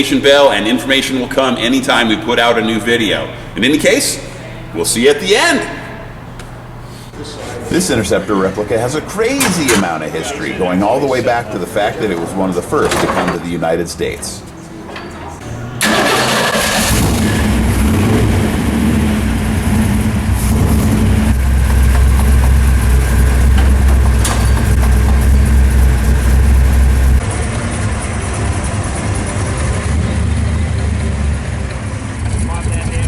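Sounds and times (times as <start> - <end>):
car engine idling: 15.6 - 33.0.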